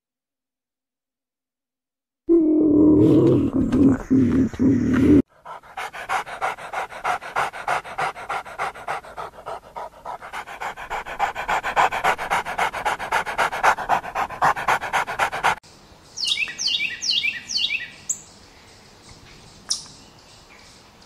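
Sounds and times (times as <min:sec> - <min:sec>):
low animal growl: 0:02.3 - 0:05.2
dog panting fast: 0:05.3 - 0:15.6.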